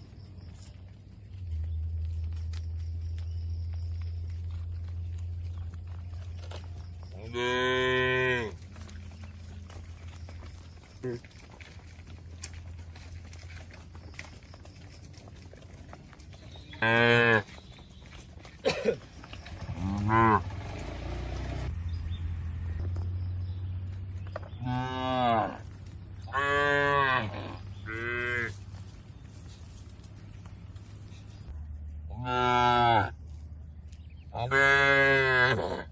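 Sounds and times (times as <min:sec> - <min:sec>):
cattle mooing: 0:07.2 - 0:09.2, 0:16.8 - 0:17.5, 0:19.7 - 0:20.8, 0:24.6 - 0:25.6, 0:26.3 - 0:28.6, 0:32.1 - 0:33.1, 0:34.4 - 0:35.9.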